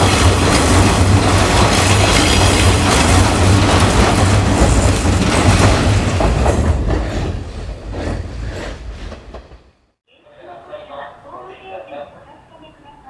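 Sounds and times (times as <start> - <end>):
wheels clattering on rails: 0.0 - 9.8
electric train passing: 0.0 - 13.0.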